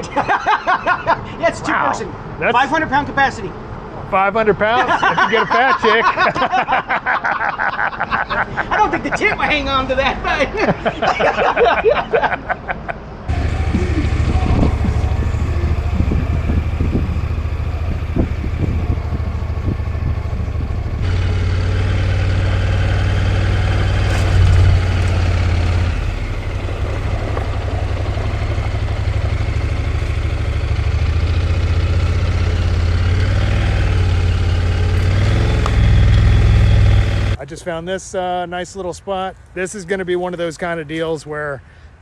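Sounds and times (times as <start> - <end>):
road and wind noise: 0.0 - 42.0
motorcycle engine running: 13.3 - 37.4.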